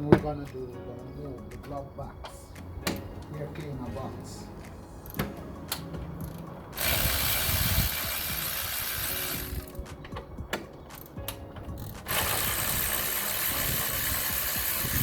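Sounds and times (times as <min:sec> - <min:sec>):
ratchet wrench clicking: 0:05.0 - 0:09.9, 0:10.9 - 0:15.0.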